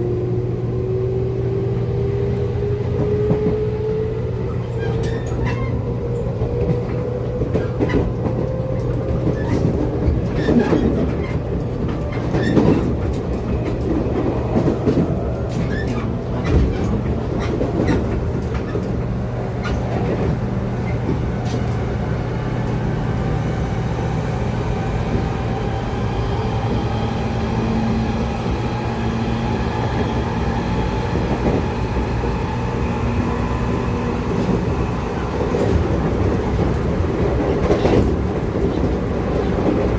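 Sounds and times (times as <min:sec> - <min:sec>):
train low rumble: 0:00.0 - 0:39.9
wheels clicking over rail joints: 0:06.4 - 0:21.9.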